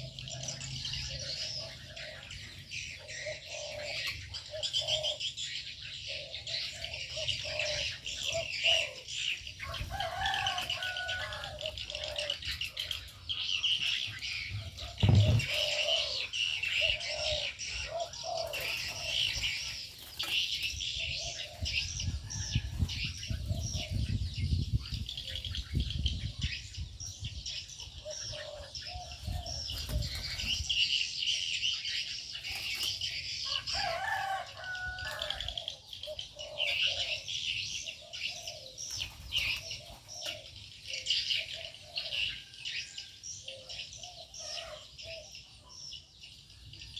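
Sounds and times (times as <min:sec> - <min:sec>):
low bird calls: 0:00.0 - 0:45.8
birds chirping: 0:00.0 - 0:46.9
thump: 0:15.0 - 0:15.6.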